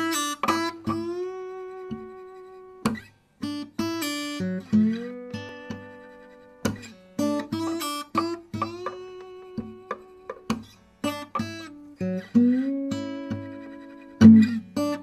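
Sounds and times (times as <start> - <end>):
acoustic guitar picking: 0.0 - 15.0.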